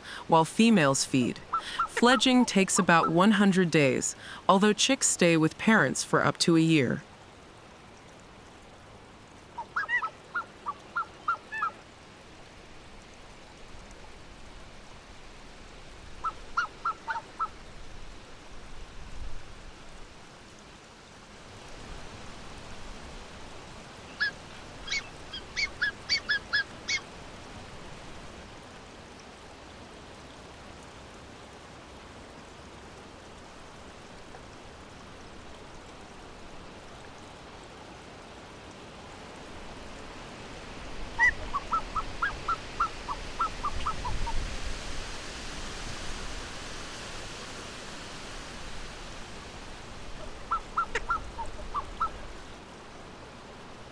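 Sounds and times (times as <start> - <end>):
background hiss: 0.0 - 53.9
swans honking: 1.4 - 3.7, 41.2 - 44.1, 50.2 - 52.2.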